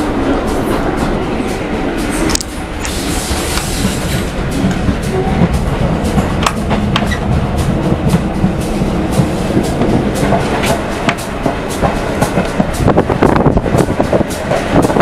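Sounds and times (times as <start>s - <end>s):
railway carriage rumble: 0.0s - 15.0s.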